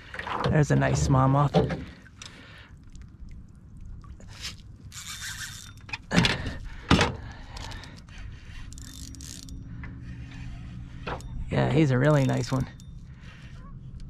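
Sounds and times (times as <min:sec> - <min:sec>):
rustling and scraping: 0:04.3 - 0:14.0.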